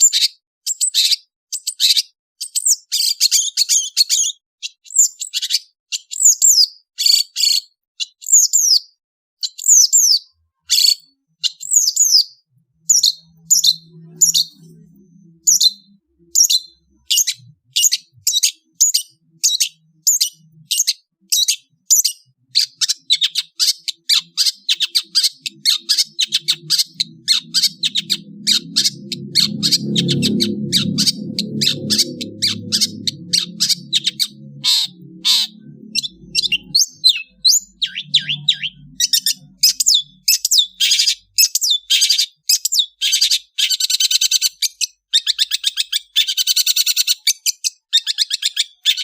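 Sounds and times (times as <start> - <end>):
bird chirping and chattering: 0.0 - 49.0
faint low sound: 12.8 - 17.7, 25.4 - 39.8.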